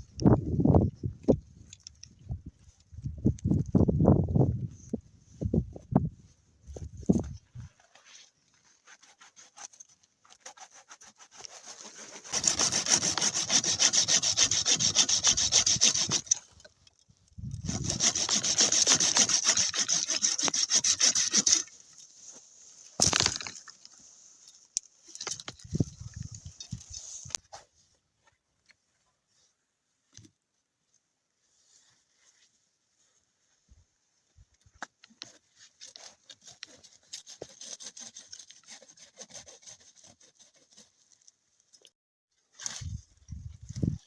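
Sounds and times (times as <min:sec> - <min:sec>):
hand saw cutting wood: 0:08.9 - 0:16.6, 0:17.6 - 0:22.0, 0:23.0 - 0:23.6, 0:35.2 - 0:41.1.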